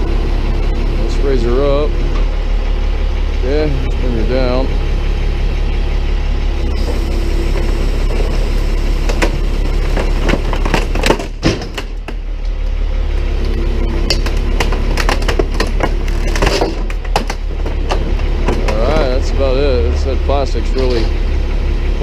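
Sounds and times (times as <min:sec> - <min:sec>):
truck engine running: 0:00.0 - 0:22.0
plastic cracking and crunching: 0:14.1 - 0:18.9.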